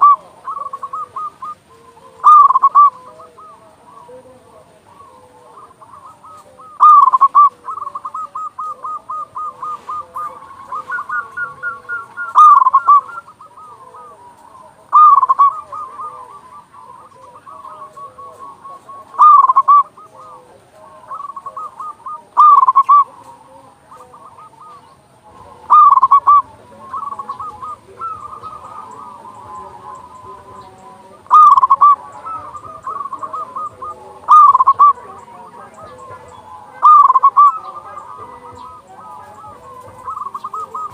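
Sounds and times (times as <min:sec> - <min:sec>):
doves cooing: 0:00.0 - 0:40.9.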